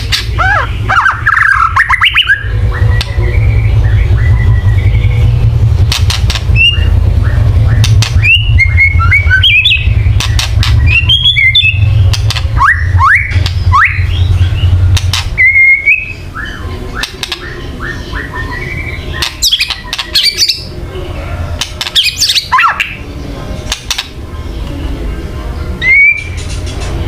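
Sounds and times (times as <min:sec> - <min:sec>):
steady low hum: 0:00.0 - 0:27.0
bird whistled notes: 0:25.8 - 0:26.4.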